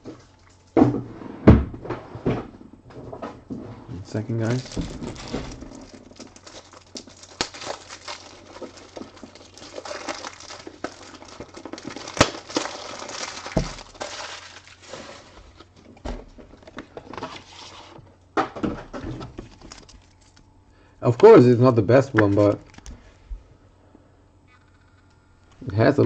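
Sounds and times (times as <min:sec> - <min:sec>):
cards and wrapping rustling: 0:04.1 - 0:18.0, 0:19.1 - 0:20.4, 0:21.1 - 0:23.1.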